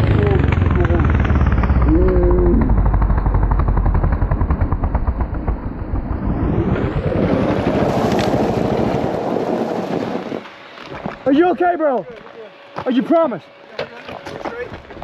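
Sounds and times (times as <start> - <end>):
rushing noise: 0.0 - 10.7
dirt bike engine running: 0.0 - 15.0.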